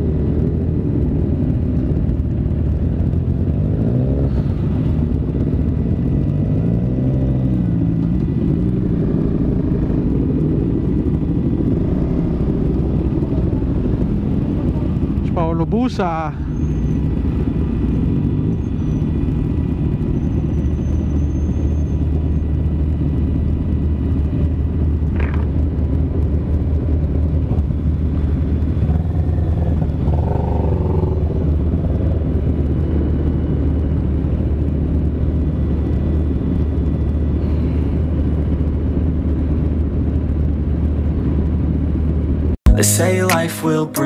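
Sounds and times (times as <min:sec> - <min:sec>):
wind rumble on microphone: 0:00.0 - 0:42.6
motorcycle engine running: 0:22.2 - 0:34.0.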